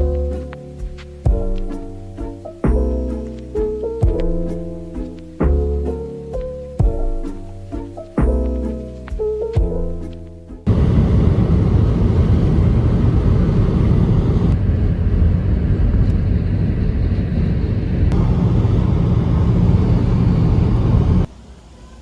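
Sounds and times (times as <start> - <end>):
vehicle rumbling: 9.6 - 22.0.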